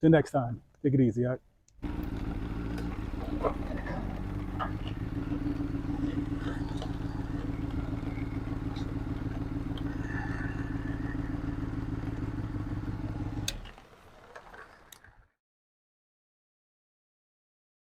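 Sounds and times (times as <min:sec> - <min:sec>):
engine idling: 0:01.8 - 0:15.1.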